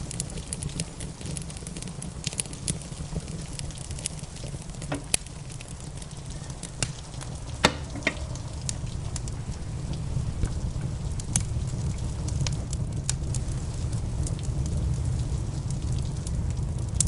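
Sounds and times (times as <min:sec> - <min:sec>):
wood fire crackling and popping: 0:00.0 - 0:17.0
low rumble: 0:03.6 - 0:17.0.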